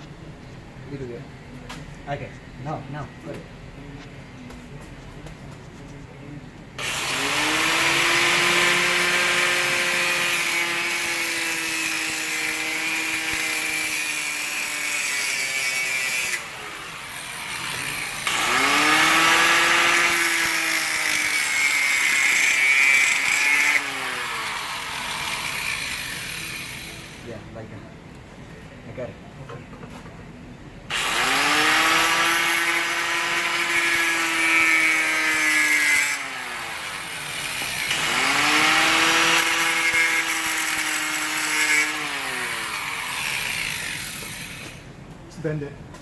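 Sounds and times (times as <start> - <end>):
power tool grinding through steel pipe: 6.8 - 27.4, 30.9 - 44.8.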